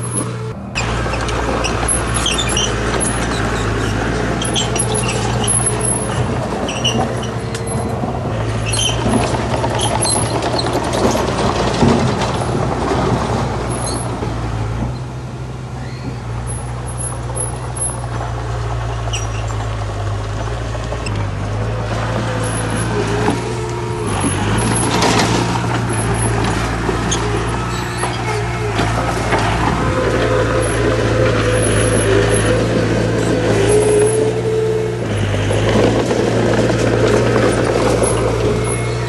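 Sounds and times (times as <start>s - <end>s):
short high squeaks: 0.0s - 11.4s, 15.7s - 18.1s, 18.8s - 19.7s, 22.2s - 36.0s, 37.9s - 39.0s
heavy diesel machinery running: 0.0s - 39.0s.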